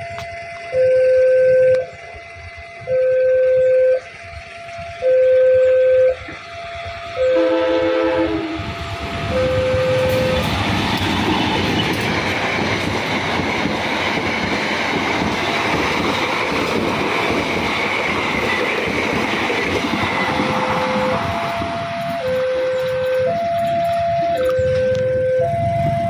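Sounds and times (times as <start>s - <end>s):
faint high whine: 0.0s - 10.7s
train wheels rumbling on rails: 0.0s - 26.0s
two-tone crossing alarm: 0.0s - 26.0s.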